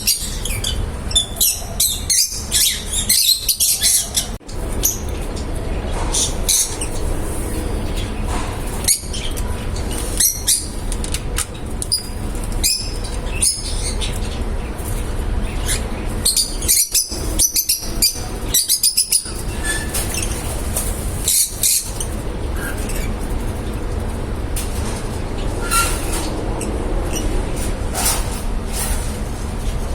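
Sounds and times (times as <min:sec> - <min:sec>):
lovebirds chirping: 0:00.0 - 0:23.8.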